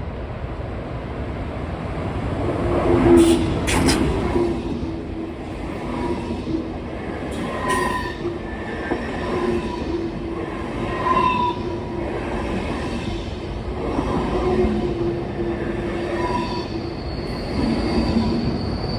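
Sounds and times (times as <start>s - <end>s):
train rumbling on track: 0.0s - 18.9s
wheels squealing: 5.3s - 13.4s, 14.6s - 18.9s.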